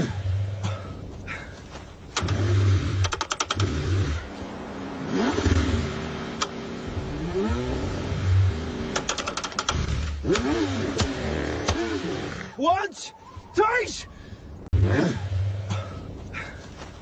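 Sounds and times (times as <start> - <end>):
car engine cranking: 2.1 - 4.4, 5.0 - 12.6
quick clicks: 3.0 - 3.7, 8.9 - 11.1.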